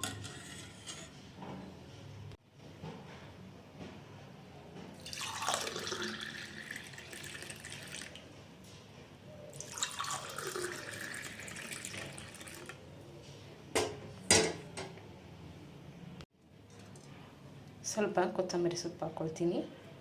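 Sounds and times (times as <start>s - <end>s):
buttermilk poured into a glass: 5.0s - 8.2s, 9.6s - 12.8s.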